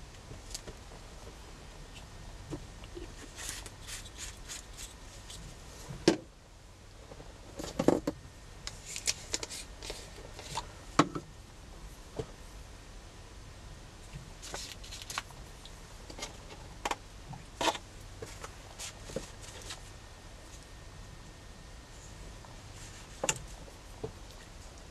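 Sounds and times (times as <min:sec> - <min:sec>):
paper rustling and shuffling: 0:03.0 - 0:06.0, 0:08.7 - 0:10.7, 0:14.4 - 0:15.3, 0:17.6 - 0:19.9.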